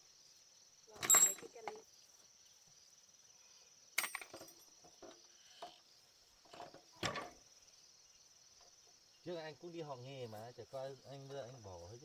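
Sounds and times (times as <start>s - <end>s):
insects chirring: 0.0s - 12.0s
metallic clinks and knocks: 1.0s - 1.6s.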